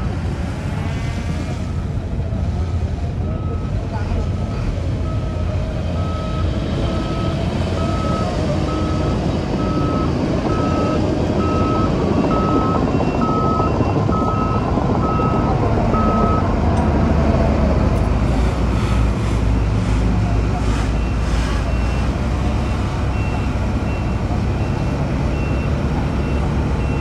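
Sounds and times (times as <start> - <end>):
diesel engine rumble: 0.0 - 27.0
reversing alarm beeping: 3.2 - 16.5, 21.0 - 27.0.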